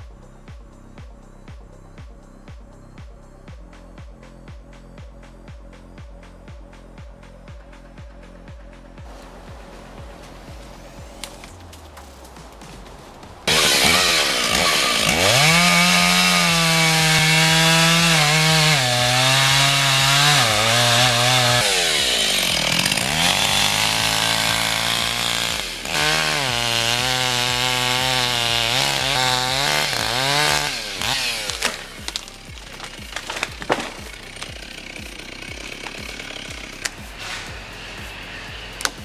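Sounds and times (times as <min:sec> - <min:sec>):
chainsaw running and cutting: 0:13.4 - 0:39.0.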